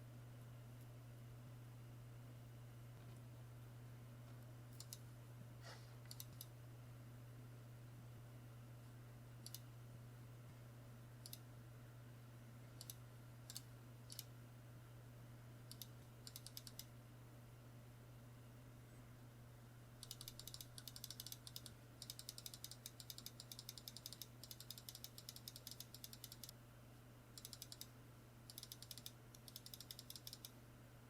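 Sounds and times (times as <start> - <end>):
steady low hum: 0.0 - 31.0
keyboard clicks: 4.7 - 5.0, 6.1 - 6.5, 9.4 - 9.6, 12.8 - 14.3, 15.7 - 16.9, 20.0 - 26.6, 27.4 - 27.9, 28.5 - 30.5.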